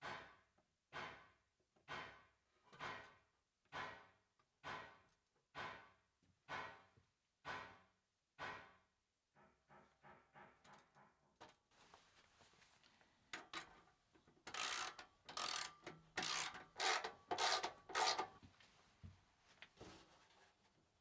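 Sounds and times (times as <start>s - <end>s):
hand tool rasping strokes: 14.5s - 18.3s.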